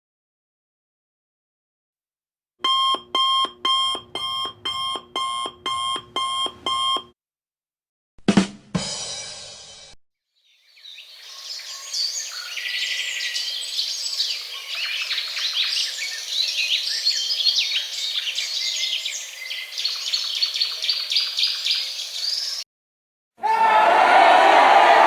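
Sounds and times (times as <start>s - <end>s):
songbirds chirping and trilling: 10.4s - 22.6s.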